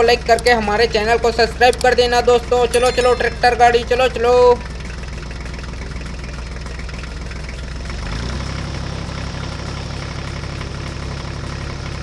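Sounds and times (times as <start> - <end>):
tractor engine running: 3.3 - 12.0.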